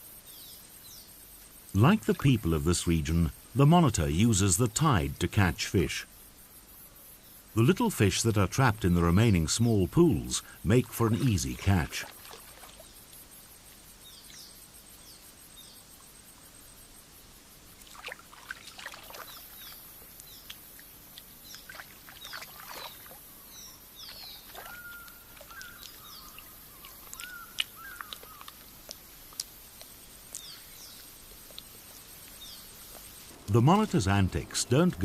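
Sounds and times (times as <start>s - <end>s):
high insect hum: 0.0s - 35.0s
small birds chirping: 0.0s - 35.0s
light water splashes: 10.4s - 13.8s, 17.7s - 34.8s.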